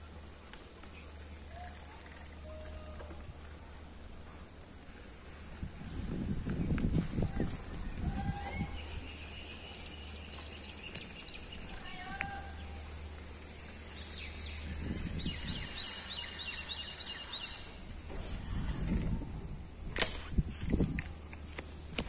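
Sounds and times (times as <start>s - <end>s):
steady low rumble: 3.2s - 22.0s
birds chirping: 7.7s - 18.5s.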